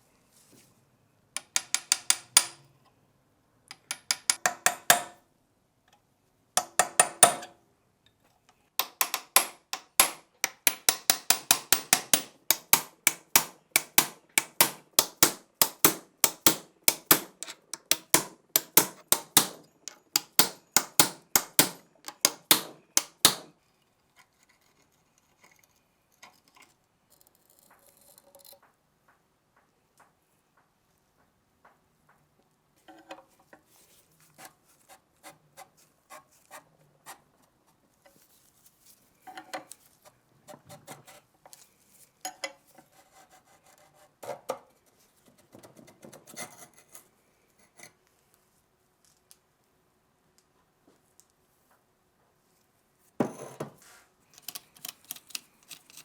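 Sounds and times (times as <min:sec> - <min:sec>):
metal-on-metal taps: 0:01.4 - 0:02.7, 0:03.7 - 0:05.2.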